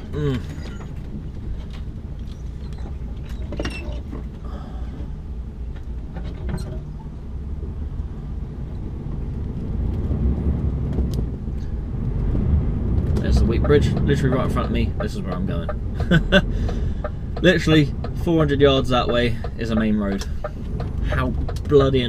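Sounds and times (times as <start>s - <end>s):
lorry diesel engine rumbling: 0.0s - 22.0s
faint cab clicks and rattles: 13.0s - 22.0s.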